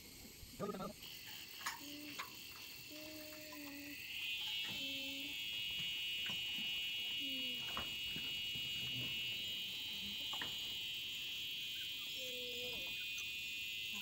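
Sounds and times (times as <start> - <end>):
insects chirring: 0.0 - 14.0
low animal calls: 0.5 - 1.0.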